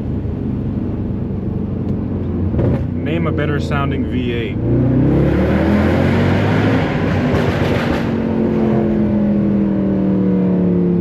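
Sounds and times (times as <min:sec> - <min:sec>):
car engine revving raspy: 0:04.5 - 0:09.5.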